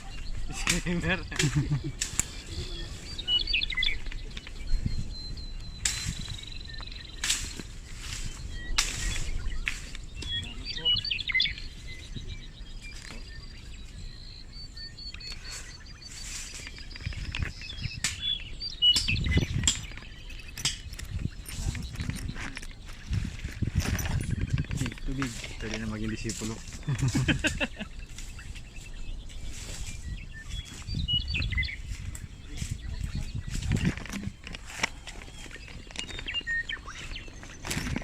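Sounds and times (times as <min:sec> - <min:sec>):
small birds chirping: 0:00.0 - 0:38.0
rustling or crunching: 0:15.2 - 0:18.4, 0:19.1 - 0:38.0.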